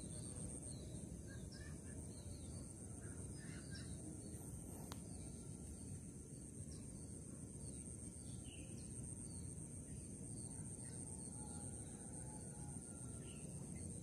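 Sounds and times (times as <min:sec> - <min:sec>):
bird chirps: 0:00.0 - 0:05.6
constant high hiss: 0:00.0 - 0:14.0.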